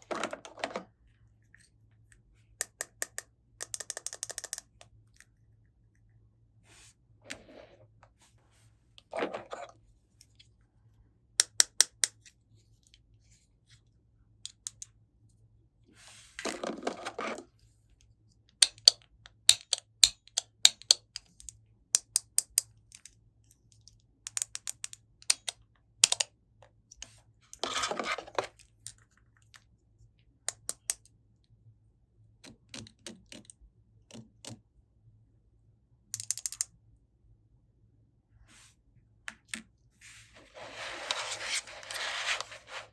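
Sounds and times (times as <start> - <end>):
plastic toy pieces clicking: 2.6 - 4.8, 11.4 - 12.2, 18.6 - 23.1, 24.3 - 26.3, 36.2 - 36.7.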